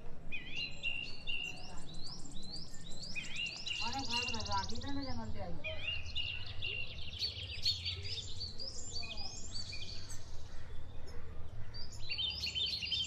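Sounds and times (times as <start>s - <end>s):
birds chirping and singing: 0.3s - 13.0s.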